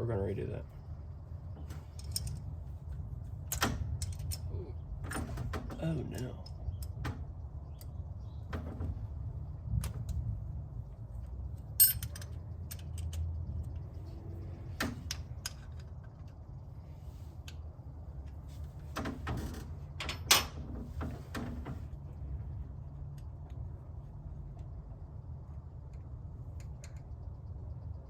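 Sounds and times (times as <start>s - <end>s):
low steady hum: 0.0s - 28.0s
tools clicking and knocking: 1.6s - 2.5s, 3.5s - 8.0s, 11.8s - 14.0s, 14.8s - 16.4s, 25.9s - 27.3s.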